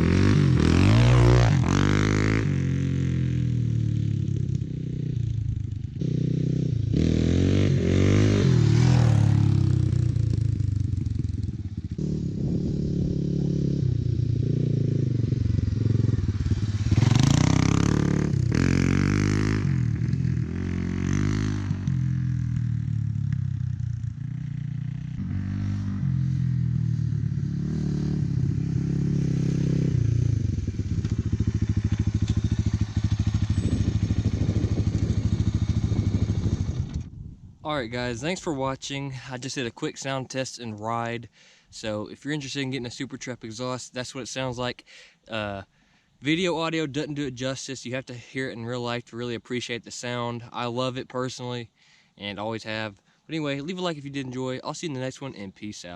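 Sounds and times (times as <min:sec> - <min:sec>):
motorcycle engine revving: 0:00.0 - 0:37.2.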